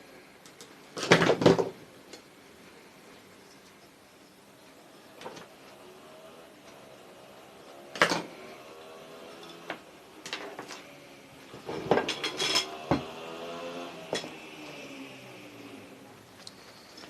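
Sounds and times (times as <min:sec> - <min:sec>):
metal tools clinking on a workbench: 0:11.7 - 0:13.1.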